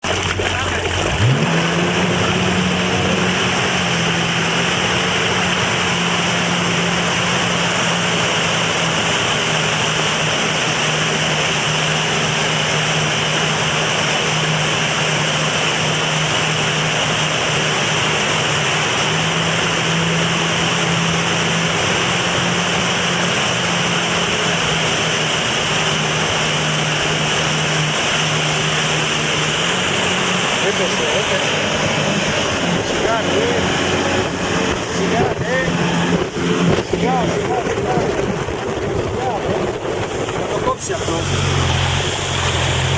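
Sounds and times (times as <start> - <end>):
jet ski engine humming: 0.0 - 42.9
water spray rushing: 0.0 - 42.9
wind noise: 31.3 - 42.9.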